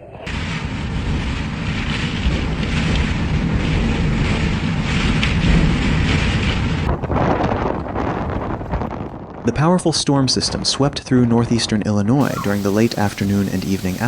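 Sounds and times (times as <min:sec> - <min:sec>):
wind gusting against microphone: 0:12.2 - 0:14.0.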